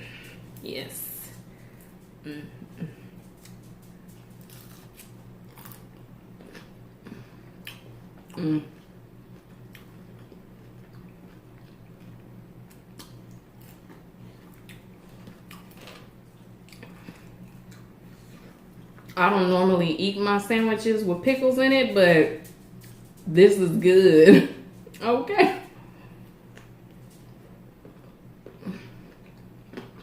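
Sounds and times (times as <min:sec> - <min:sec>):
low electrical hum: 0:00.0 - 0:30.0
person humming mm: 0:02.2 - 0:03.1, 0:08.3 - 0:08.8
chewing crispy food: 0:02.8 - 0:19.2, 0:26.5 - 0:30.0.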